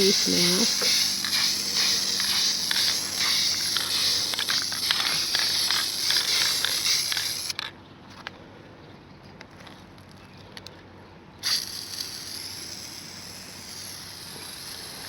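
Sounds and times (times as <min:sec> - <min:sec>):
spray paint can hissing: 0:00.0 - 0:07.7, 0:11.4 - 0:15.0
spray nozzle click: 0:00.1 - 0:07.6.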